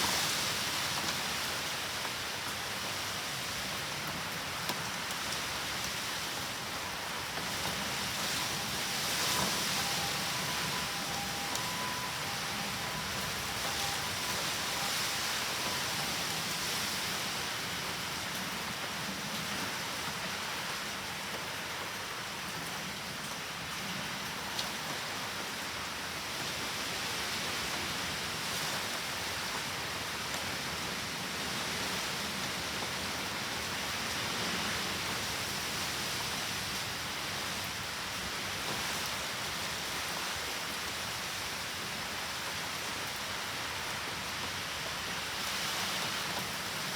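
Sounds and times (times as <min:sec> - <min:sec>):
heavy rain hissing: 0:00.0 - 0:21.3.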